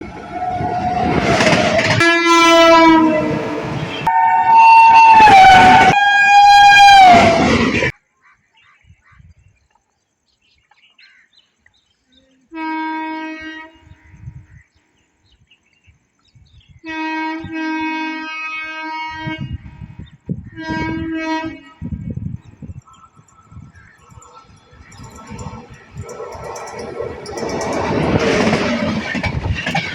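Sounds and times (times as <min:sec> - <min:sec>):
train horn blowing: 0:00.0 - 0:07.9, 0:12.5 - 0:14.2, 0:16.8 - 0:19.8, 0:20.5 - 0:22.0
train passing at speed: 0:00.0 - 0:07.9, 0:20.8 - 0:29.9.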